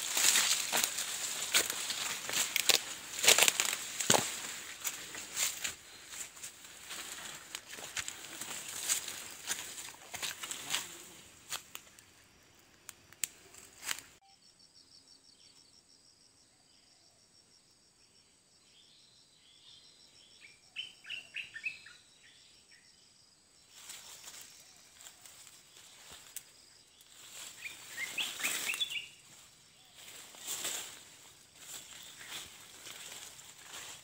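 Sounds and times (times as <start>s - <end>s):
leaves rustling: 0.0s - 12.2s, 13.2s - 14.2s, 23.8s - 34.0s
small birds chirping: 23.7s - 34.0s.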